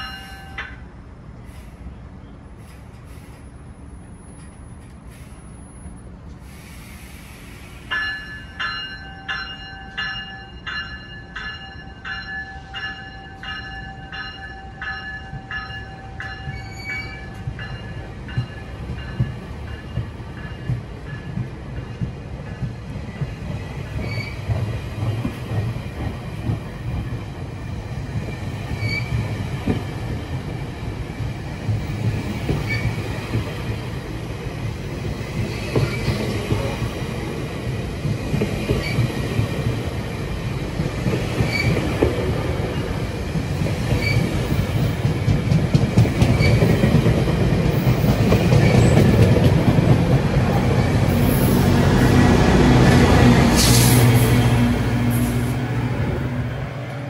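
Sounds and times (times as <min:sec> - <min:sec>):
train wheels rumbling on rails: 0:00.0 - 0:57.0
high wheel squeaks: 0:24.0 - 0:24.5, 0:28.7 - 0:29.2, 0:41.4 - 0:42.0, 0:46.2 - 0:46.9.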